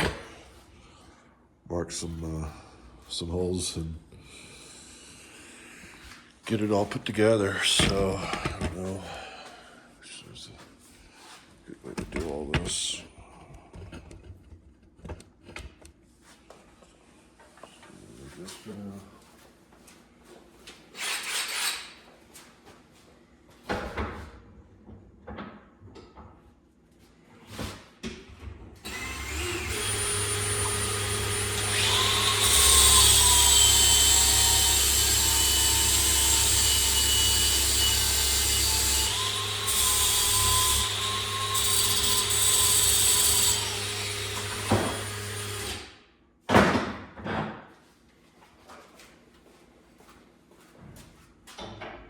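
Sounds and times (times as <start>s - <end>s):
power tool motor whining: 28.9s - 42.4s.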